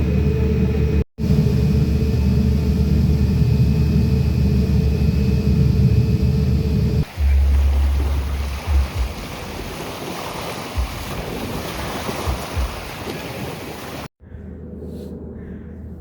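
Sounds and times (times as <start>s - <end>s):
steady low hum: 0.0s - 9.8s, 10.5s - 16.0s
wind buffeting microphone: 6.8s - 16.0s
water rushing: 7.0s - 14.1s.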